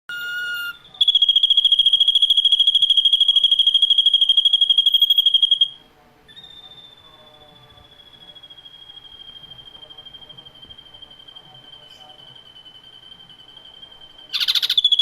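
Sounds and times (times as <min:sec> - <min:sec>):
bird trilling: 0:00.1 - 0:09.4, 0:14.3 - 0:15.0
thin whistled note: 0:06.3 - 0:15.0.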